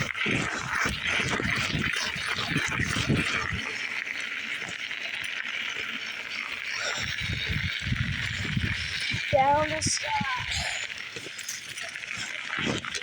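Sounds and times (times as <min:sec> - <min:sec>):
wind buffeting microphone: 0:00.0 - 0:03.8, 0:06.8 - 0:10.9
bicycle rolling hiss: 0:00.0 - 0:13.0.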